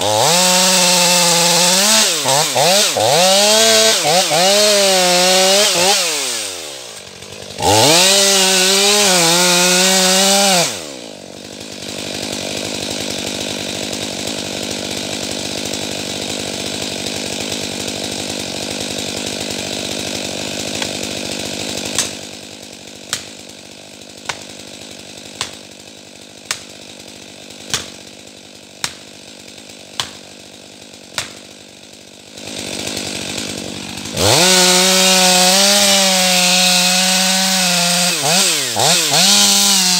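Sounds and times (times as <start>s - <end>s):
chainsaw revving and idling: 0.0s - 39.9s
sharp knocks: 30.0s - 30.2s, 31.2s - 31.4s.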